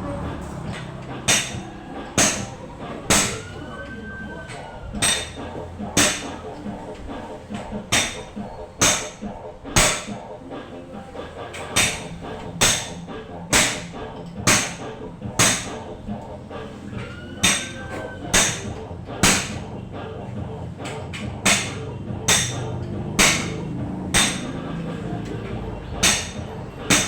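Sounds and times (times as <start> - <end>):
hammer ringing on metal: 0.7 - 7.0, 7.9 - 10.3, 11.8 - 16.0, 17.2 - 19.7, 21.4 - 24.9, 26.0 - 27.0.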